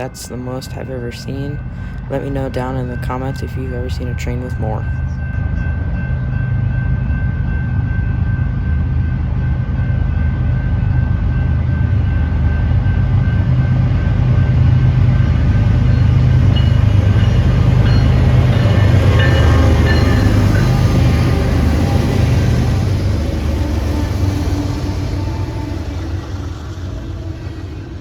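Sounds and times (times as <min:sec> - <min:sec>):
freight train rumbling past: 0:00.0 - 0:28.0
rattling wheel noise: 0:10.5 - 0:28.0.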